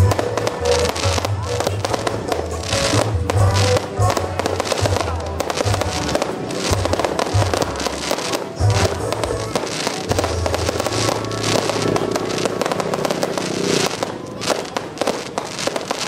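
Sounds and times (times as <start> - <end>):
loud music with bass beat: 0.0 - 14.6
fireworks bursting and crackling: 0.0 - 16.0.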